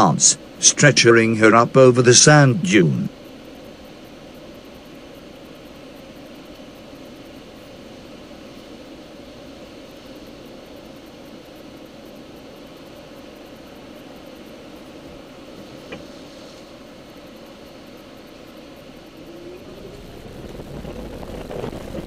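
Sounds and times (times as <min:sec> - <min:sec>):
car engine idling: 0:18.9 - 0:22.0.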